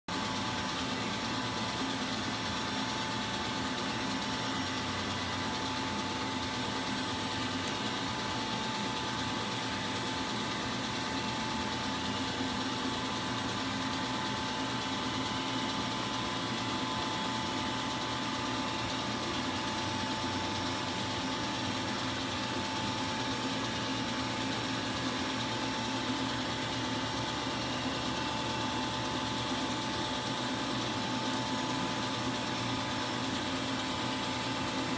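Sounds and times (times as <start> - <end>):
milling machine humming and whining: 0.1 - 34.9.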